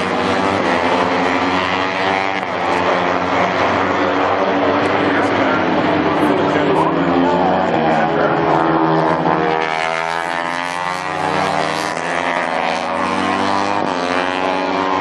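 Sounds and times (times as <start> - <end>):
racing motorcycles passing: 0.0 - 15.0.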